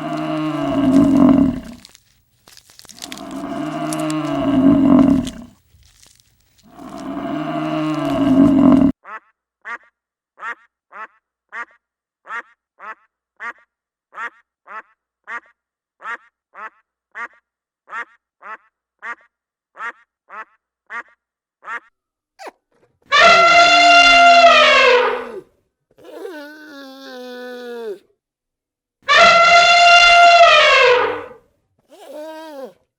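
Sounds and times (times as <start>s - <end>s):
cow mooing: 0.0s - 1.9s, 3.0s - 5.5s, 6.7s - 8.9s, 23.1s - 25.4s, 29.1s - 31.4s
duck quacking: 14.2s - 22.5s.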